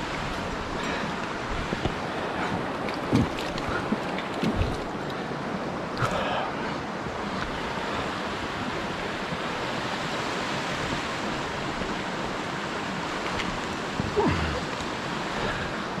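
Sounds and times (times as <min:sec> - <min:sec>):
river flowing: 0:00.0 - 0:16.0.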